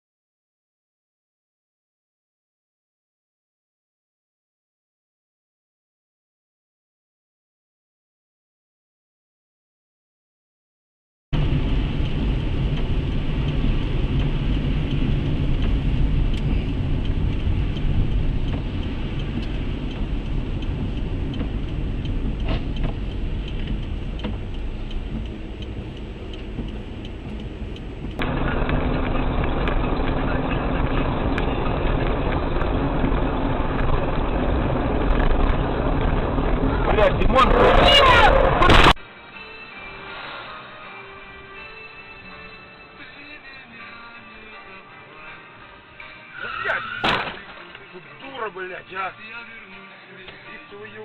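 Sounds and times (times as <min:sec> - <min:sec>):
car road and engine noise: 0:11.4 - 0:51.0.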